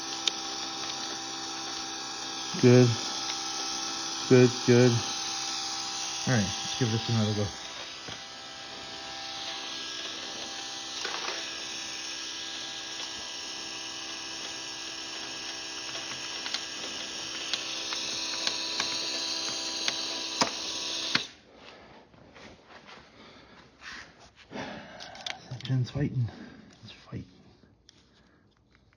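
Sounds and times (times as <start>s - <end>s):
sharp clicks: 0.0s - 21.3s
starter motor cranking engine: 0.0s - 21.3s.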